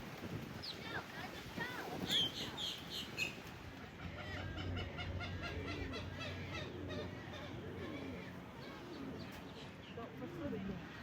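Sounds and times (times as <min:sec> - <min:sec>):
wetland birds chirping: 0:00.0 - 0:11.0
birds clucking: 0:01.9 - 0:10.0.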